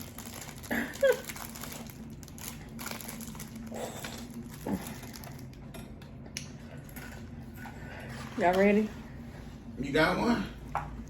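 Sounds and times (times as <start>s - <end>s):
plastic wrapper crinkling: 0.0s - 5.6s.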